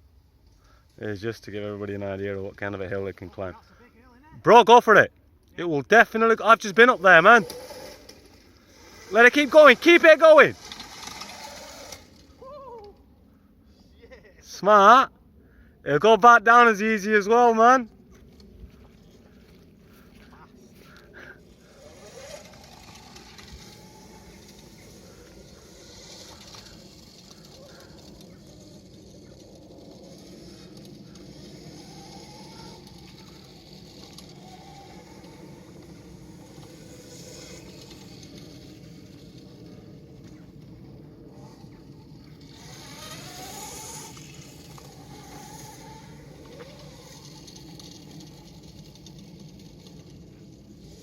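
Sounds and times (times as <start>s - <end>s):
outdoor noise: 0.0s - 51.0s
electric motor whine: 6.6s - 12.5s, 18.2s - 51.0s.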